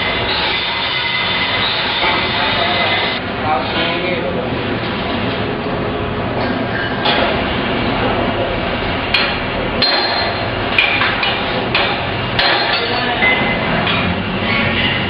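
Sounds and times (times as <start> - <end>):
workshop noise: 0.0 - 15.0
hammer striking metal: 9.1 - 14.2.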